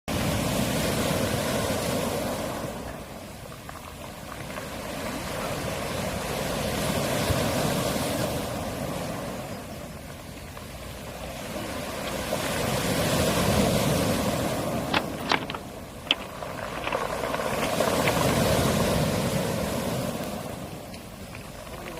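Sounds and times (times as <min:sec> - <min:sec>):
waves washing on pebble beach: 0:00.1 - 0:21.9
pebbles rattling in backwash: 0:14.2 - 0:19.4, 0:20.9 - 0:21.9.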